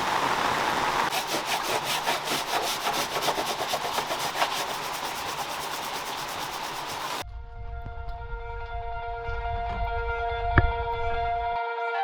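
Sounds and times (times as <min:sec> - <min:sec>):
heavy rain drumming on a boat: 0:00.0 - 0:01.6, 0:04.0 - 0:07.2
music with sustained tones: 0:07.3 - 0:12.0.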